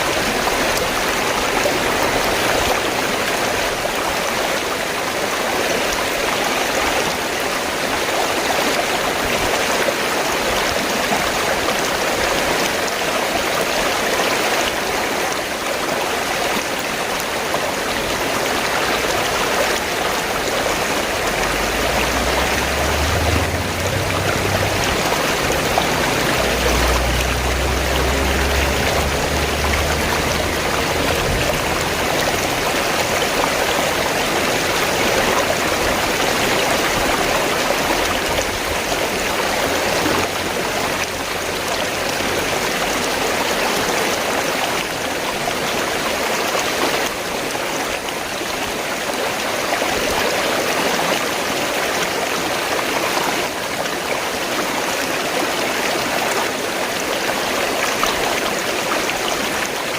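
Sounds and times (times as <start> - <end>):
river water flowing: 0.0 - 59.9
low rumble: 21.0 - 33.5.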